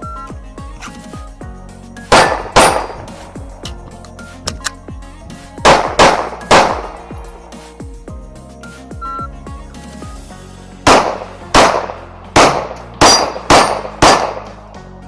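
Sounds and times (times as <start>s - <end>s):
background music: 0.0s - 15.0s
pistol shots: 2.1s - 3.2s, 5.6s - 7.1s, 10.9s - 14.6s.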